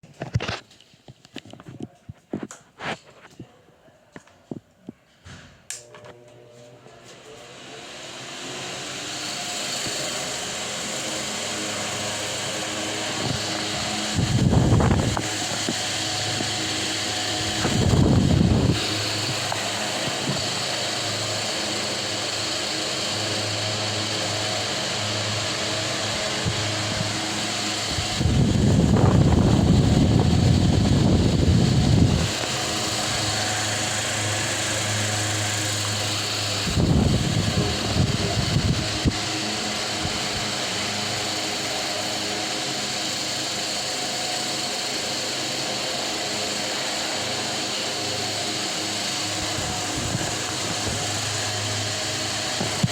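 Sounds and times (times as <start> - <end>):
electric fan running: 4.5 - 52.9
wind buffeting microphone: 14.1 - 16.6, 17.4 - 19.5, 27.8 - 32.4, 36.6 - 39.3, 49.4 - 51.2.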